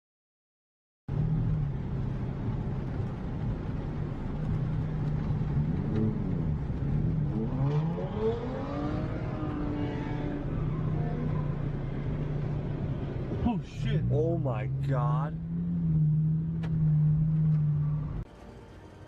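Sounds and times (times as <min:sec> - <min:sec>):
road traffic engine hum: 0:01.1 - 0:19.0
engine notes gliding in pitch: 0:07.2 - 0:11.9.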